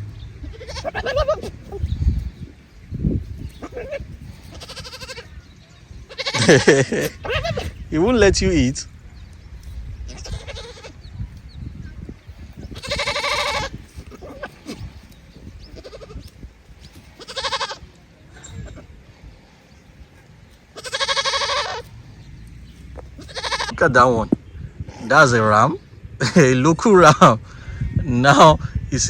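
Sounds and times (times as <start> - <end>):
livestock bleating: 0.4 - 1.8, 3.6 - 5.4, 6.0 - 7.8, 10.0 - 11.0, 12.6 - 15.0, 15.6 - 16.4, 17.1 - 18.9, 20.7 - 21.9, 23.1 - 23.9.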